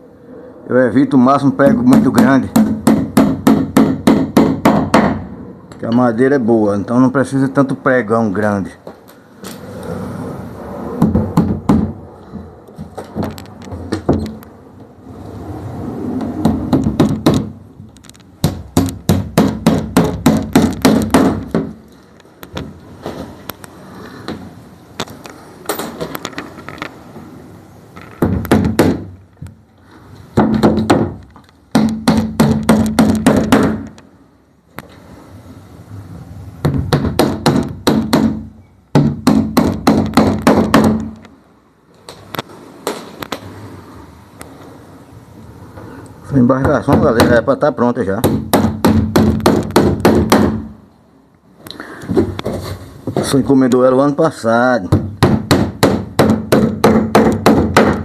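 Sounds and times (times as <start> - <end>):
hammer driving nails into wood: 1.9 - 5.2, 16.4 - 17.5, 18.4 - 21.8, 28.2 - 29.1, 30.4 - 34.0, 36.6 - 41.2, 48.2 - 50.7, 54.9 - 58.0.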